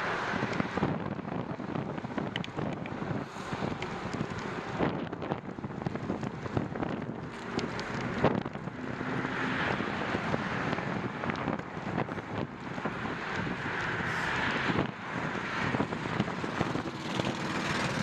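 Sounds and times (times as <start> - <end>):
wind buffeting microphone: 0.0 - 18.0
bicycle clicks and rattles: 2.2 - 3.0, 3.6 - 8.7.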